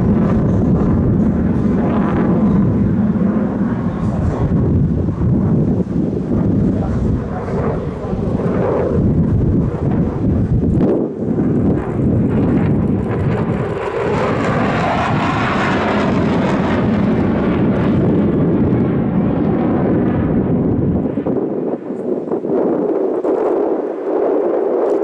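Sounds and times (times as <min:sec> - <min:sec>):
aircraft flying past: 0:00.0 - 0:22.1.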